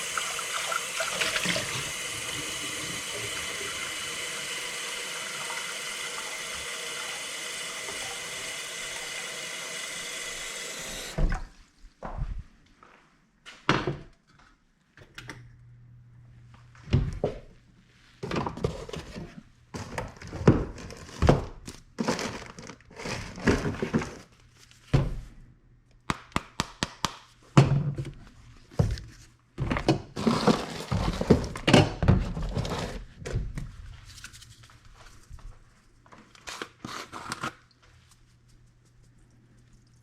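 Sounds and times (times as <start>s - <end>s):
rustling and crinkling: 28.3s - 40.0s.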